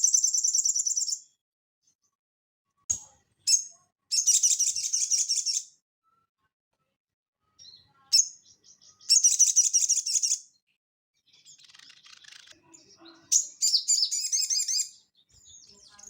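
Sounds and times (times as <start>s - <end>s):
songbird call and trill: 0.0s - 1.2s, 3.5s - 5.7s, 7.6s - 10.6s, 11.2s - 16.0s.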